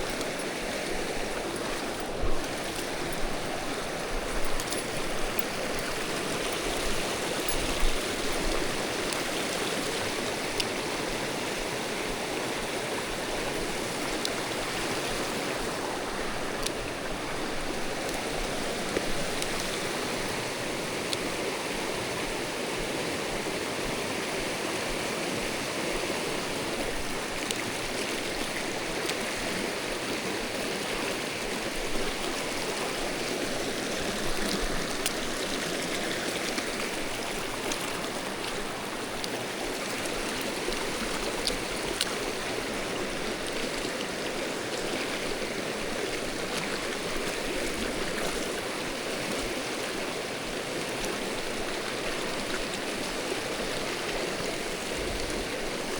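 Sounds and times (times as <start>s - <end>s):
faint light ticks: 0.0s - 3.5s, 4.2s - 10.8s, 14.0s - 14.4s, 16.5s - 16.8s, 18.0s - 20.4s, 27.0s - 29.3s, 34.3s - 35.3s, 40.0s - 42.4s
stream rushing over rocks: 0.0s - 55.9s.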